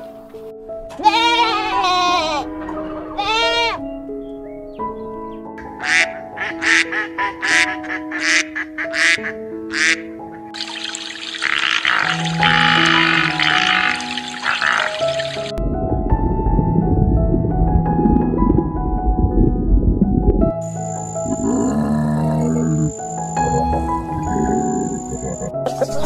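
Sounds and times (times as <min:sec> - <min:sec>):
soft background music: 0:00.0 - 0:26.0
duck quacking: 0:05.8 - 0:10.1, 0:11.4 - 0:15.5
wavering animal calls: 0:10.6 - 0:15.5, 0:20.8 - 0:26.0.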